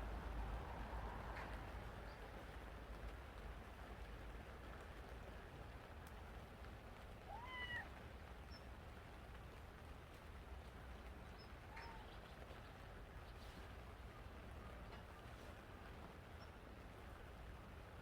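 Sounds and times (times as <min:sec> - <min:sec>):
cat meowing: 0:07.3 - 0:07.9.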